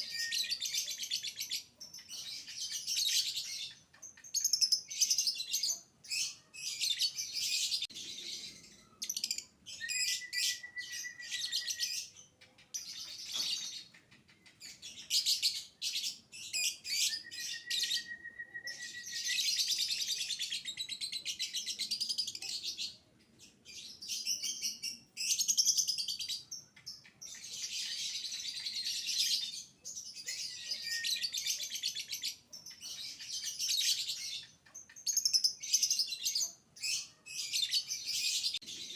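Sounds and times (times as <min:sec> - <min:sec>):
bird whistled notes: 0:09.8 - 0:12.0, 0:16.9 - 0:19.6.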